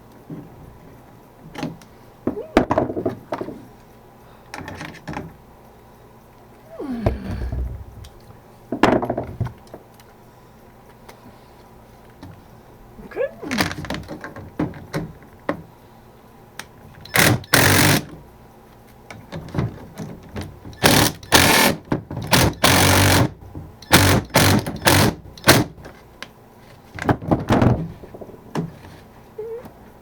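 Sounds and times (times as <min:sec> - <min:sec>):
power tool motor bursts: 0:17.1 - 0:18.1, 0:20.8 - 0:25.7.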